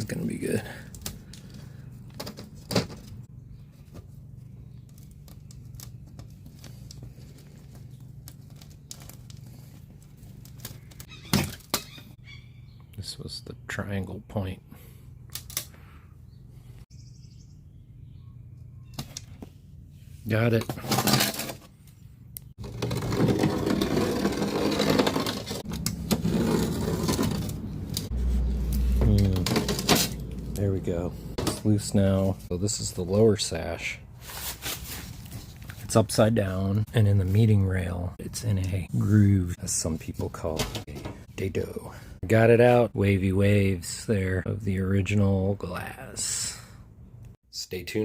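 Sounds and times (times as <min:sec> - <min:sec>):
low hum: 0:17.4 - 0:32.7
blade scraping caulk: 0:22.6 - 0:28.1.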